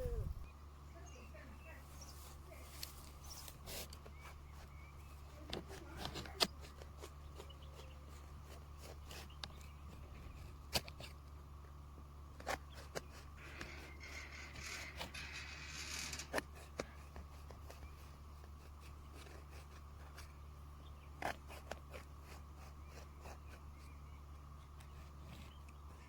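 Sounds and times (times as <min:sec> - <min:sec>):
steady low hum: 0:00.0 - 0:26.0
scraping rustling: 0:12.4 - 0:17.8.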